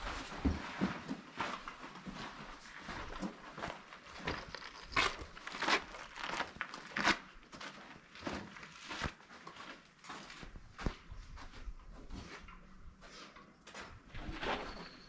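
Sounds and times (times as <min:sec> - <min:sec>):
footsteps on sandy ground: 0:00.0 - 0:14.8.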